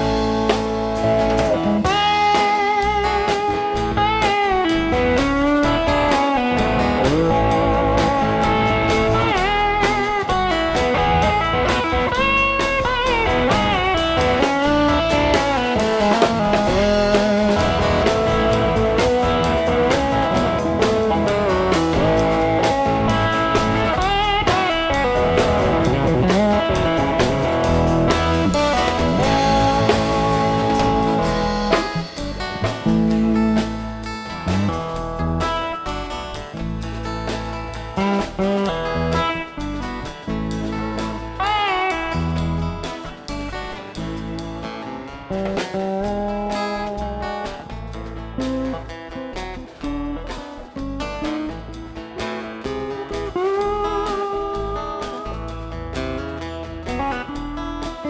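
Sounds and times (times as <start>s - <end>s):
lead guitar solo: 0.0s - 58.0s
live rock band playing: 0.0s - 58.0s.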